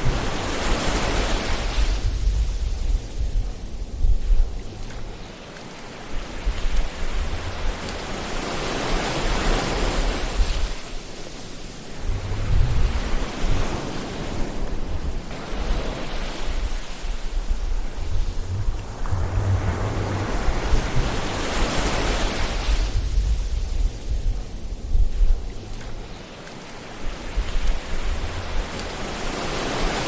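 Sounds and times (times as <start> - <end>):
low rumble of surf: 0.0 - 30.0
waves breaking on shore: 0.0 - 30.0.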